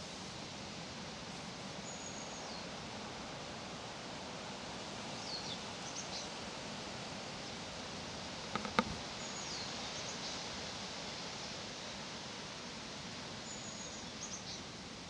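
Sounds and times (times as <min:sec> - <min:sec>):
steady background noise: 0:00.0 - 0:13.4.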